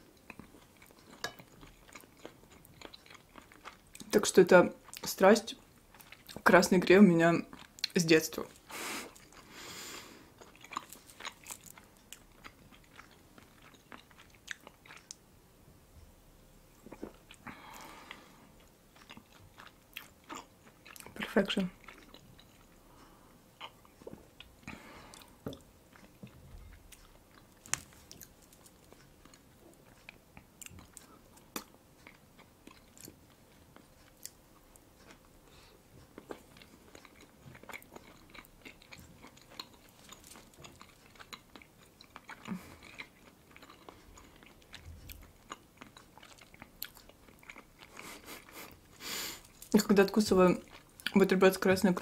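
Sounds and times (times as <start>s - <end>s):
wet chewing and biting: 0.2s - 4.2s, 10.4s - 15.2s, 36.0s - 49.8s.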